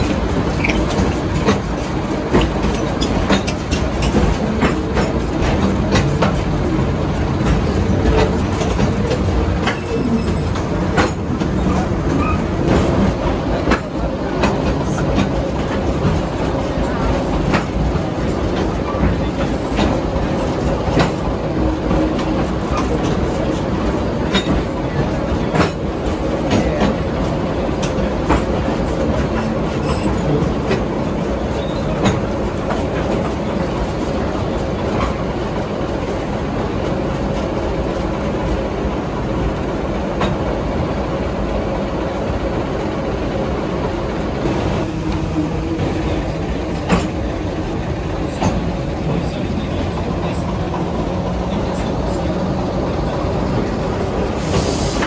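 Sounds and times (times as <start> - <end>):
wheels clicking over rail joints: 0.0 - 6.6
train rolling rumble: 0.0 - 55.0.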